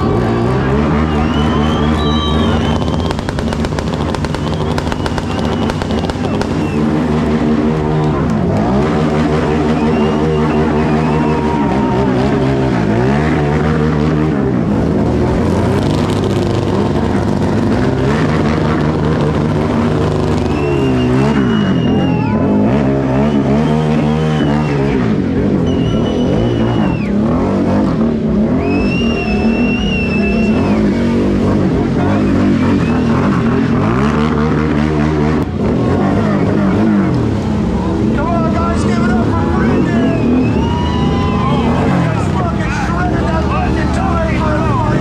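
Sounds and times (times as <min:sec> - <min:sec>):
high-pitched whoops: 0:00.0 - 0:13.4, 0:20.3 - 0:27.4, 0:28.4 - 0:31.3, 0:39.1 - 0:42.5
motorcycle engines revving: 0:00.0 - 0:45.0.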